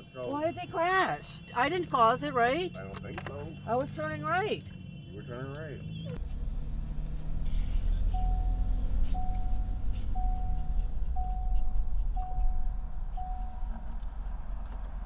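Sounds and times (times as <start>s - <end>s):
low vehicle rumble: 1.3s - 15.0s
electronic beeps: 8.1s - 13.8s.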